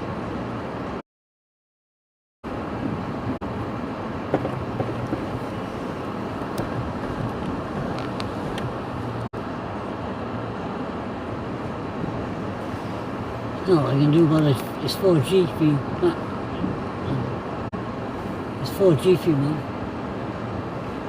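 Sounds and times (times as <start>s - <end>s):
wind buffeting microphone: 2.7s - 9.3s.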